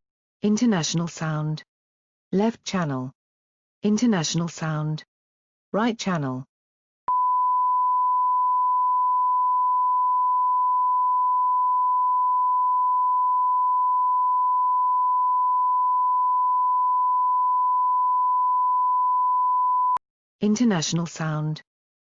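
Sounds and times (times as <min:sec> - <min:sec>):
sine-wave line-up tone: 0:07.1 - 0:20.0.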